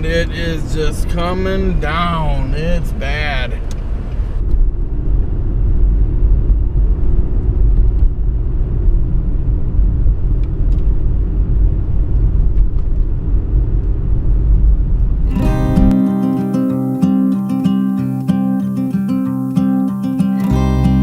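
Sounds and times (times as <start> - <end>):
guitar music: 15.2 - 21.0.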